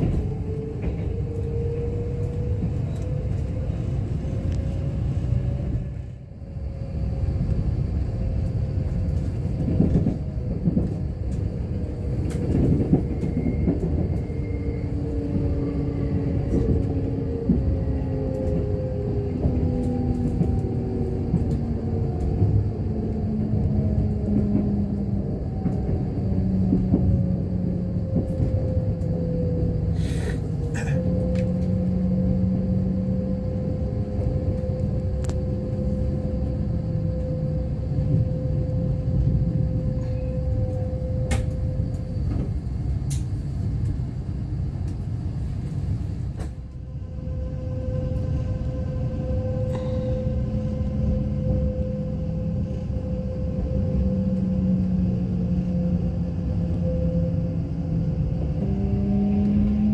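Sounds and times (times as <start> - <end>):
train running gear rumble: 0.0 - 59.9
humming tones sliding in pitch: 11.4 - 42.6, 46.7 - 59.9.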